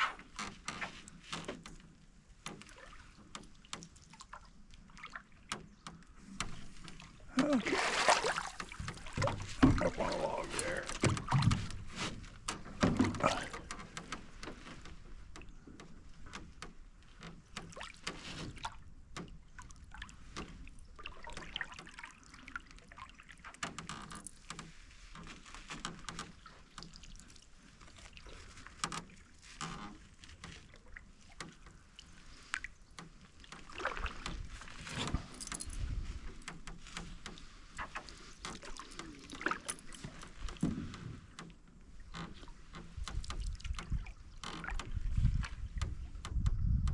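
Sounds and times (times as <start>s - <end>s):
water dripping off paddle: 2.4s - 11.7s
paddle knocking on hull: 5.0s - 19.6s, 36.0s - 46.9s.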